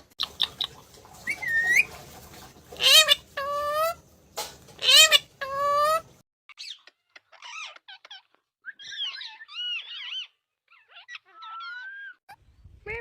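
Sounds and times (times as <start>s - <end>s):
parrot chattering softly: 4.8s - 12.1s.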